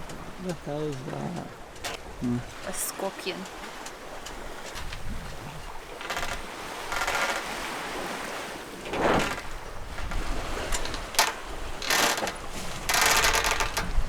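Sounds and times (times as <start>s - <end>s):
water splashing against boat hull: 0.0s - 14.0s
wind on microphone: 4.3s - 11.8s, 12.4s - 14.0s.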